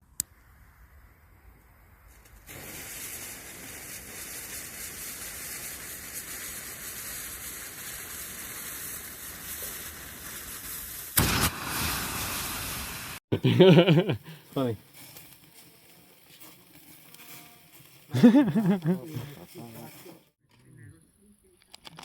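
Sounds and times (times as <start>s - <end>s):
smoke bomb hissing: 0.4s - 20.4s.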